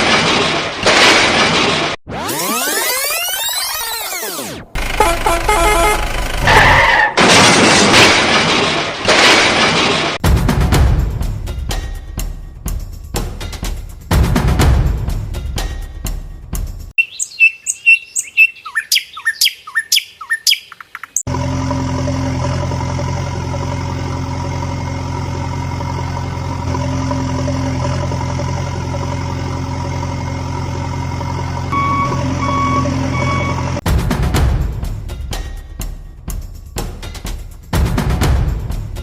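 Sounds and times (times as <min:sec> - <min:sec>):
truck engine running: 0:04.7 - 0:07.0, 0:21.3 - 0:33.8
birds chirping: 0:17.0 - 0:21.3
reversing beeps: 0:31.7 - 0:33.8.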